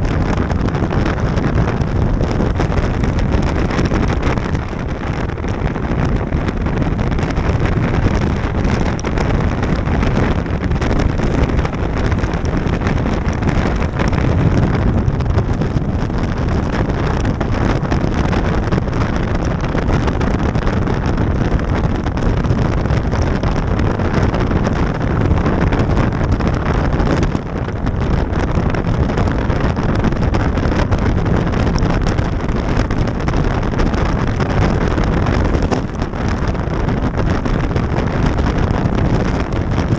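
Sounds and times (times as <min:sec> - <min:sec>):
road noise: 0:00.0 - 0:39.9
wind rushing over microphone: 0:00.0 - 0:39.9.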